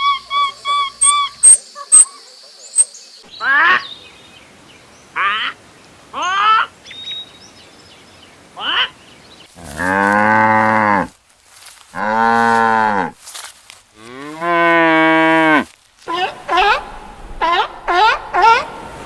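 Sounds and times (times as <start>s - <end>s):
cow mooing: 9.6s - 11.1s.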